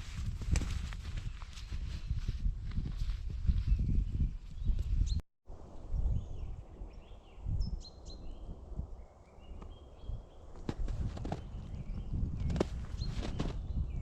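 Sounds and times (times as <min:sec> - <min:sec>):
footsteps crunching in snow: 0:00.0 - 0:05.0, 0:10.6 - 0:11.7, 0:12.4 - 0:13.7
small birds chirping: 0:03.5 - 0:05.2, 0:06.0 - 0:14.0.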